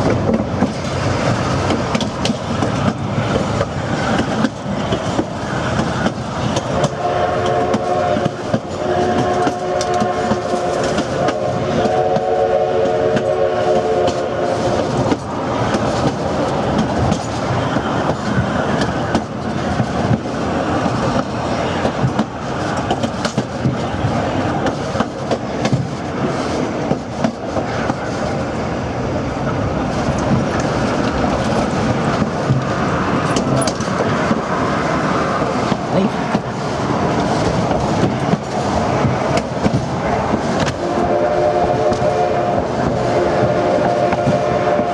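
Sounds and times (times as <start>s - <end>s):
wheels clacking over rail joints: 0.0s - 44.8s
passenger cars rumbling on rails: 0.0s - 44.9s
steam locomotive chime whistle: 6.7s - 15.2s, 40.7s - 44.9s.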